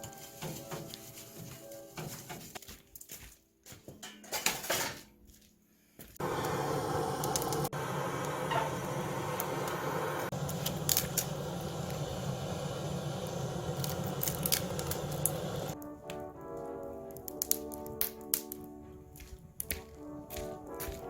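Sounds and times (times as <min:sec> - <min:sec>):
wood fire crackling and popping: 0:06.2 - 0:21.0.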